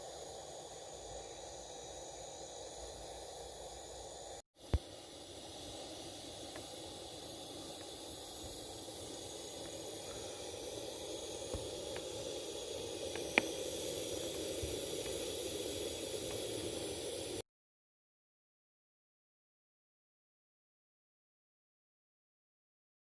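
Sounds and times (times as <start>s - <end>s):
faint ticks: 13.0s - 13.6s.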